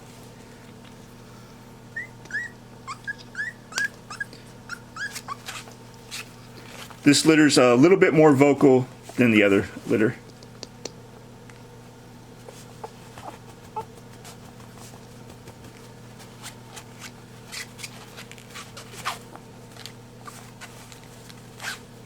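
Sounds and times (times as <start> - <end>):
steady low hum: 0.0 - 22.0
puppy scrabbling and shuffling: 4.9 - 7.4, 11.8 - 22.0.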